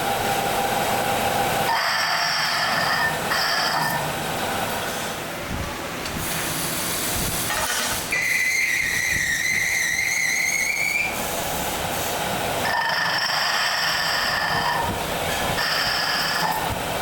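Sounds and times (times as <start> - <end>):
factory machinery hissing: 0.0 - 17.0.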